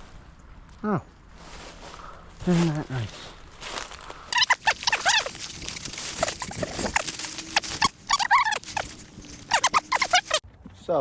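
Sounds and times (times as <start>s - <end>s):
dog whining and yelping: 4.3s - 10.4s
rustling: 4.3s - 10.4s.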